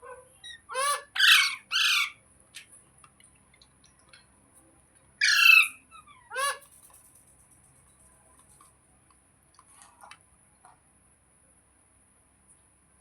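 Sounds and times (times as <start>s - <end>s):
parrot squawking: 0.4s - 2.2s, 5.2s - 6.7s.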